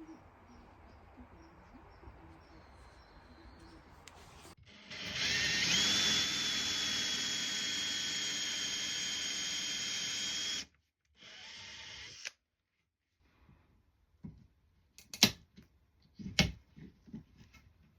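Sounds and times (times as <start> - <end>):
small electric motor whining: 4.4 - 12.3.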